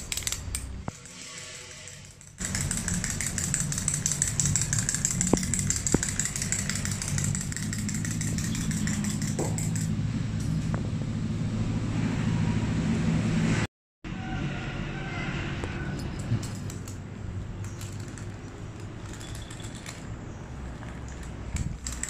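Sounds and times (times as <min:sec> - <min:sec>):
fast high ticking: 0:02.1 - 0:10.0.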